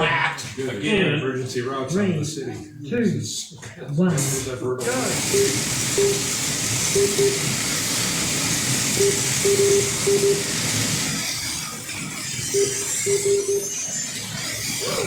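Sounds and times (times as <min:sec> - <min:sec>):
slot cars whirring: 0:04.8 - 0:15.0
short electronic beeps: 0:05.1 - 0:10.8, 0:12.4 - 0:14.2.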